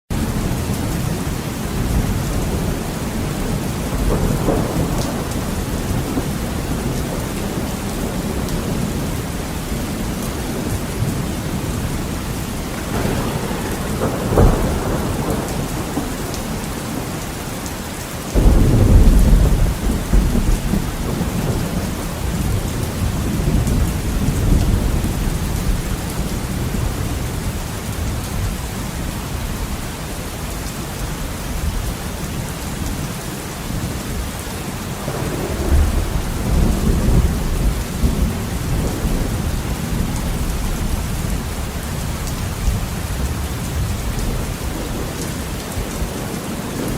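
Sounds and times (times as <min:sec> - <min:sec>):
thunder rumbling: 0:00.1 - 0:29.8, 0:33.7 - 0:46.9
heavy rain against a window: 0:00.1 - 0:46.9
sharp thunder crack: 0:12.7 - 0:16.6, 0:18.4 - 0:25.9, 0:35.0 - 0:40.1.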